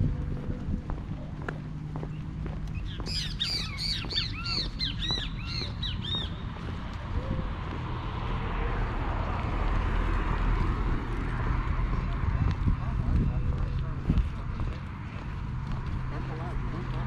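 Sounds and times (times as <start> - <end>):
bird calling: 2.8 - 7.4.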